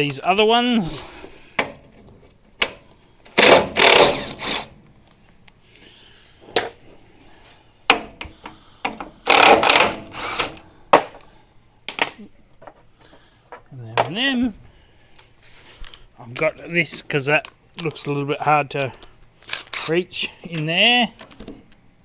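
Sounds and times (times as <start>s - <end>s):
handheld power tool running: 3.4s - 4.7s, 9.3s - 10.6s.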